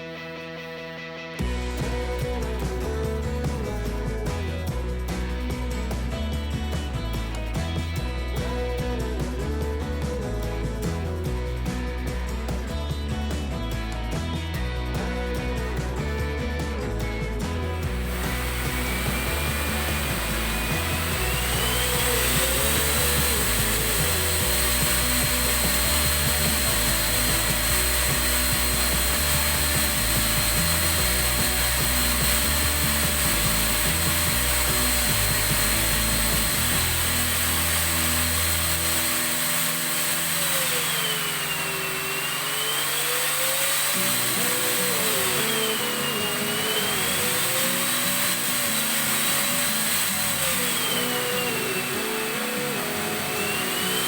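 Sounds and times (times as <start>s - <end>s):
background music: 0.0s - 54.0s
vacuum cleaner motor whine: 17.6s - 54.0s.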